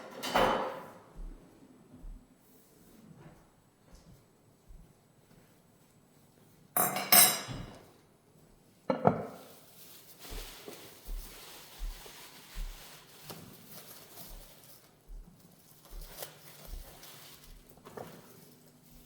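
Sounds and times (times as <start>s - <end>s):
dishes clattering: 0.0s - 1.0s, 6.8s - 7.9s, 8.9s - 9.4s
rustling: 9.4s - 19.0s.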